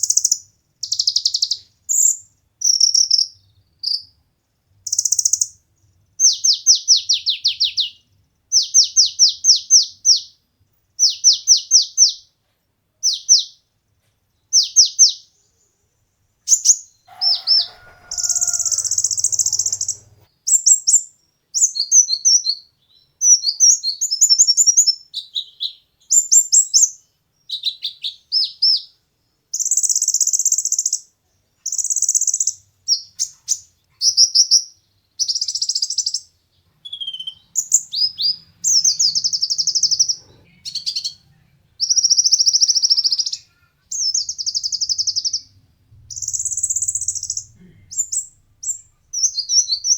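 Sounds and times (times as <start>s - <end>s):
sunbird singing: 16.5s - 29.0s, 31.7s - 41.2s, 41.8s - 49.9s.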